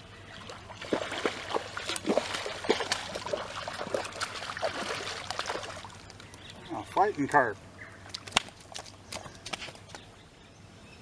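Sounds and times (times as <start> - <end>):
fish splashing in water: 0.3 - 6.3.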